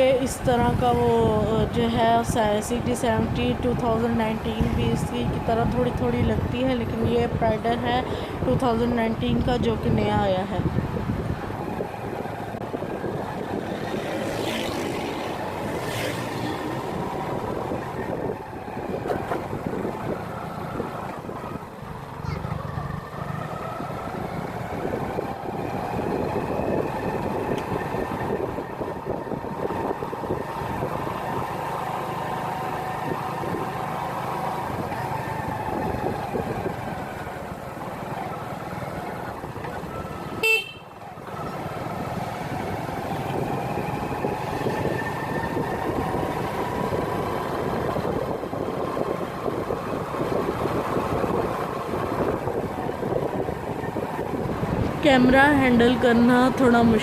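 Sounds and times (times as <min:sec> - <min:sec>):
wind noise: 0:00.0 - 0:57.0
motorcycle engine: 0:10.6 - 0:57.0
horn beep: 0:40.4 - 0:41.0.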